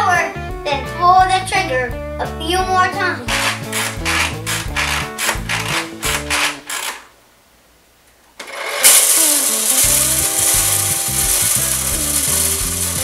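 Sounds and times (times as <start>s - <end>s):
background music: 0.0s - 6.6s, 8.8s - 13.0s
toy trimmer ratchet whirring: 3.3s - 7.1s, 8.4s - 13.0s.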